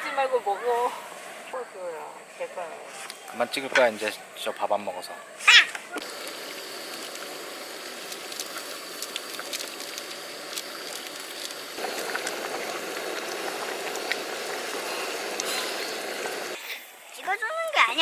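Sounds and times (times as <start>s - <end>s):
small crackles: 5.5s - 16.6s
food sizzling on hot surface: 6.0s - 16.6s.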